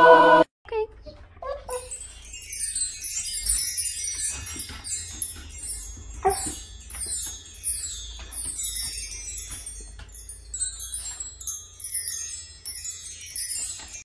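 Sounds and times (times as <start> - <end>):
jingling bells and chimes: 1.6 - 14.0.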